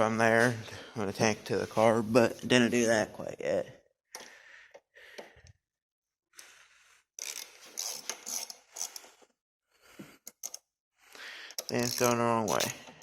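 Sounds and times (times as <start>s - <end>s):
ratchet wrench clicking: 7.2s - 9.0s, 11.5s - 13.0s.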